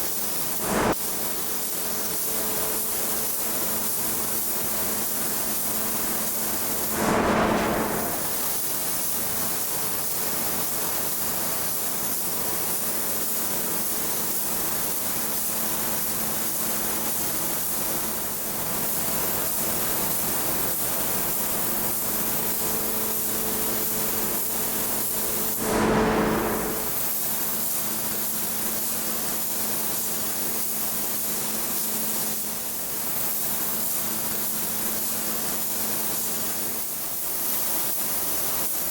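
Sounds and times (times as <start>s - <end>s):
machine hissing: 0.0s - 34.0s
short whooshes: 6.8s - 8.4s.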